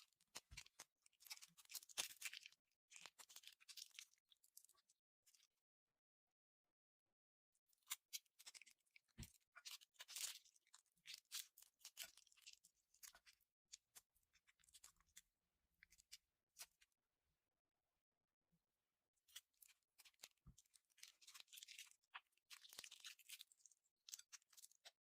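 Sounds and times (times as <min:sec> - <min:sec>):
slime crackling and popping: 0:21.0 - 0:25.0.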